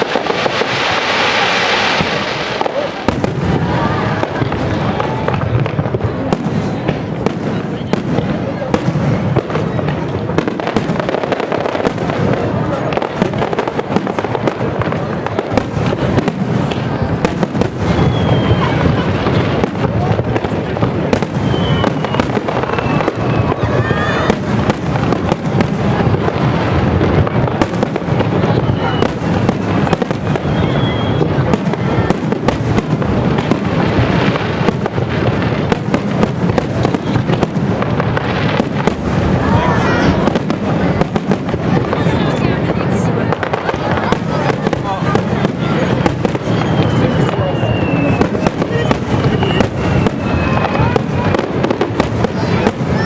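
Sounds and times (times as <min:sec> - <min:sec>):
fireworks bangs and crackles: 0:00.0 - 0:53.0
firework whistle: 0:15.6 - 0:40.5, 0:44.0 - 0:53.0.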